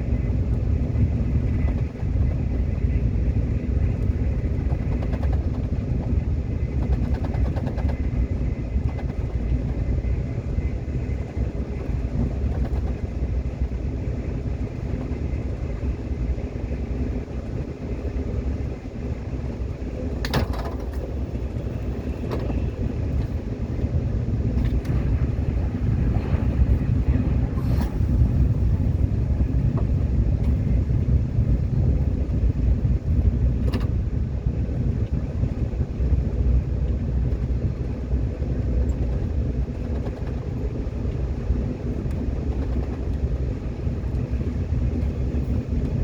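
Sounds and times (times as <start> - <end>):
subway train rumbling on rails: 0.0 - 46.0.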